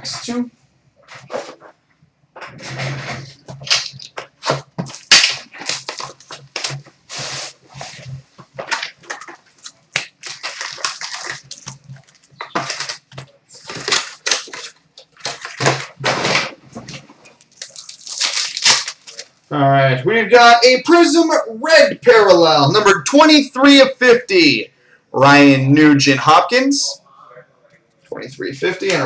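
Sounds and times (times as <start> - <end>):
packaging crinkling and tearing: 3.1 - 19.5.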